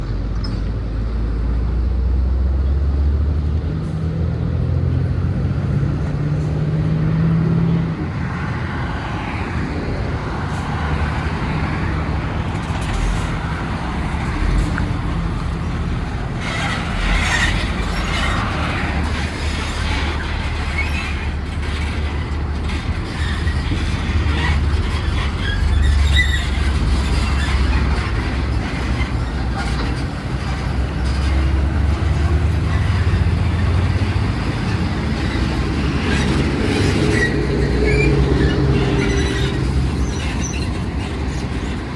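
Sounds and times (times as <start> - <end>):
truck diesel engine revving: 10.2 - 41.9.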